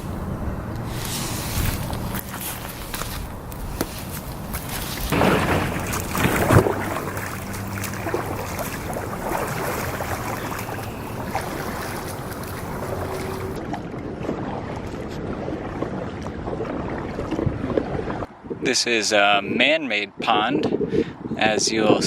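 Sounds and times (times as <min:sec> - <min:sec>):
paddle splashing in water: 0:00.0 - 0:18.2
water drips and knocks: 0:01.9 - 0:13.6.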